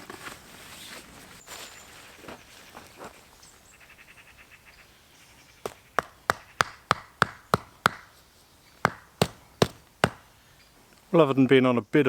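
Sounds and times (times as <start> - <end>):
mallet hammering tent peg: 5.6 - 8.2, 8.8 - 10.3.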